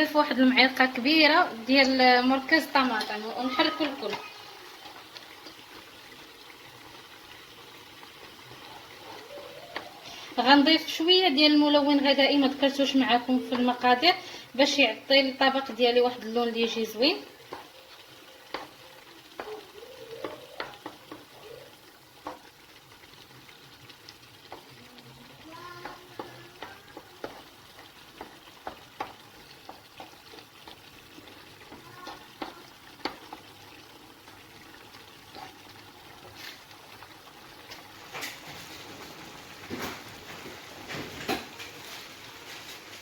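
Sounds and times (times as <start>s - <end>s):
rice sizzling in a pan: 0.0s - 43.0s
spoon scraping a pan: 25.8s - 33.4s.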